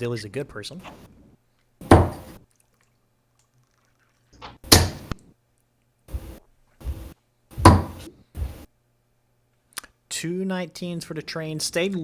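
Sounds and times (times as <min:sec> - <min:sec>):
darts striking a dartboard: 0:01.8 - 0:02.3, 0:04.7 - 0:05.1, 0:07.6 - 0:08.1.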